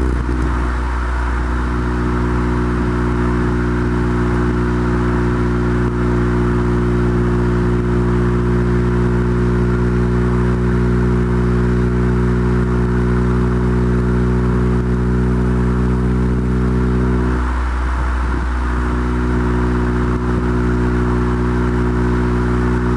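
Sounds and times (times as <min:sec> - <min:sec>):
car engine droning: 0:00.0 - 0:22.9.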